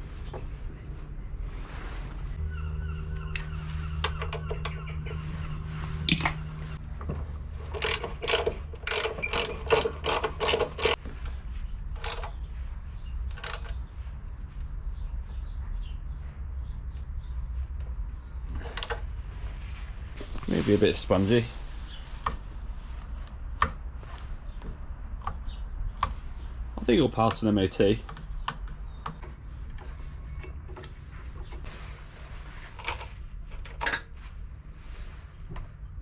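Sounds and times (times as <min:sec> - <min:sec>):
ratchet spanner clicking: 0:07.7 - 0:11.0, 0:12.0 - 0:12.3, 0:13.3 - 0:13.8.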